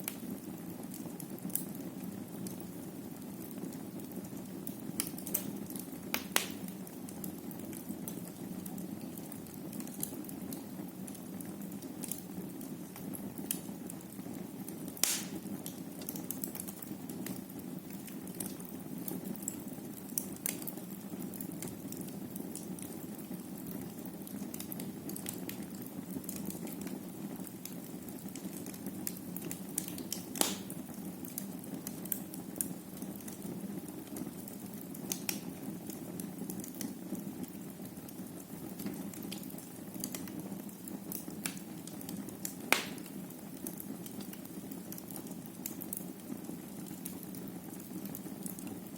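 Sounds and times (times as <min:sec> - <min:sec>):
wood fire crackling and popping: 0:00.0 - 0:48.9.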